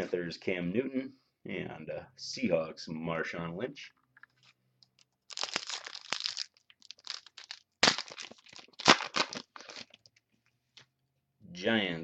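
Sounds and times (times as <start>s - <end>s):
foil wrapper tearing and crinkling: 5.3s - 10.0s.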